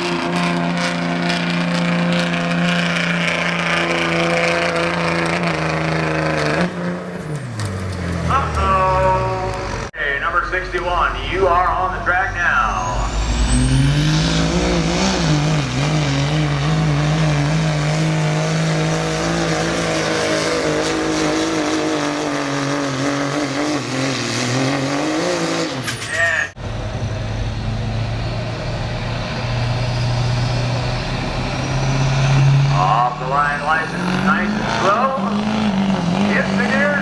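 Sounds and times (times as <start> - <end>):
diesel engine at full throttle: 0.0 - 37.0
low diesel engine drone: 0.0 - 37.0
high engine whistle: 11.9 - 17.7.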